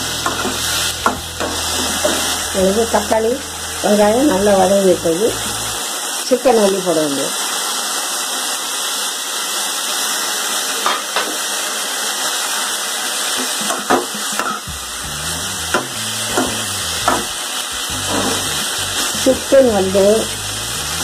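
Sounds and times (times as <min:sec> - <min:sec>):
chicken sizzling in hot oil: 0:00.0 - 0:21.0.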